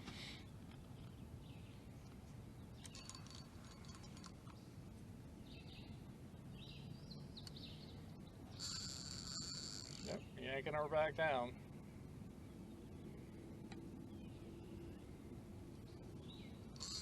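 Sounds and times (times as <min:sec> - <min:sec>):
low steady background noise: 0:00.0 - 0:17.0
faint bird chirps: 0:05.4 - 0:10.4, 0:15.9 - 0:17.0.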